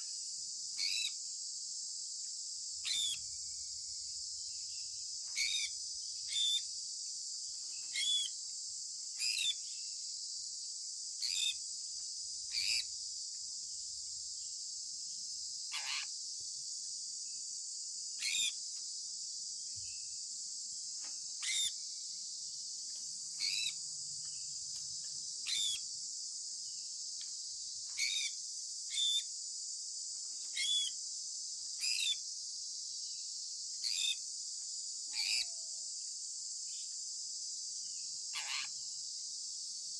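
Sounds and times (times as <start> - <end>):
steady high-pitched hiss: 0.0 - 39.9
parrot chirping: 21.4 - 21.7, 25.5 - 25.8.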